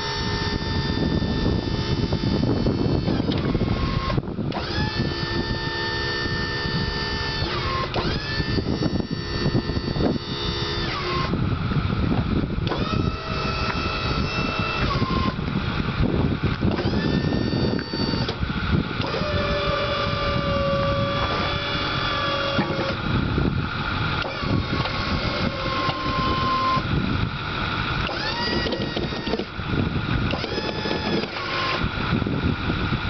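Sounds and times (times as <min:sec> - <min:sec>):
hydraulic pump whining: 0:00.0 - 0:33.0
truck engine running: 0:00.0 - 0:33.0.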